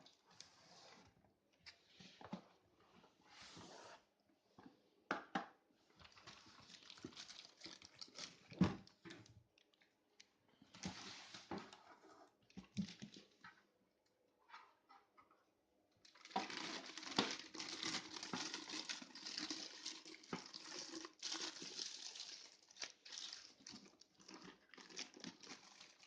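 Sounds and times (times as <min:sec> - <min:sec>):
cardboard and plastic rustling: 0:06.0 - 0:09.3, 0:16.1 - 0:26.0.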